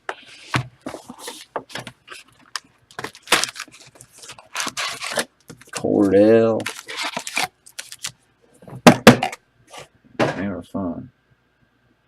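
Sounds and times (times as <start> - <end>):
cards and packaging rustling: 0.2 - 8.2.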